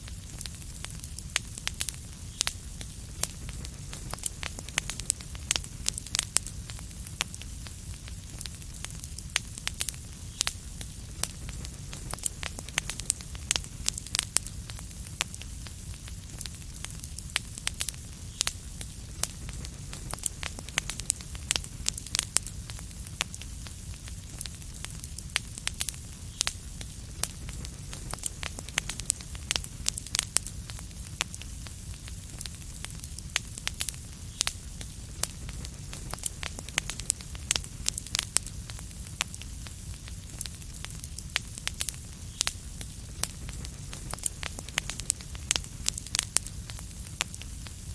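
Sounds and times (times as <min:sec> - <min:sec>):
wood fire crackling: 0:00.0 - 0:47.9.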